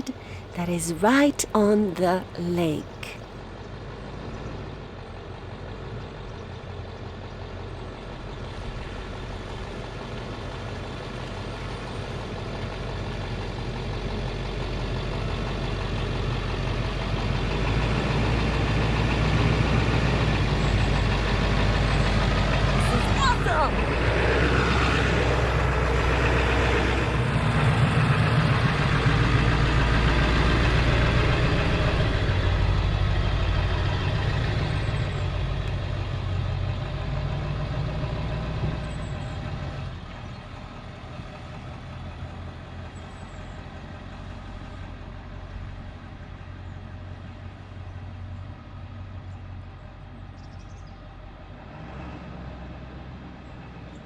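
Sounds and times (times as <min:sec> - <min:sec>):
truck engine rumbling: 0:16.0 - 0:50.3.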